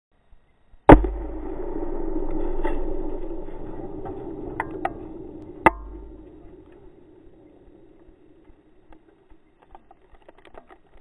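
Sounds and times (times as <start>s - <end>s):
loud explosion blast: 0.9s - 7.9s
long rumble: 0.9s - 9.4s.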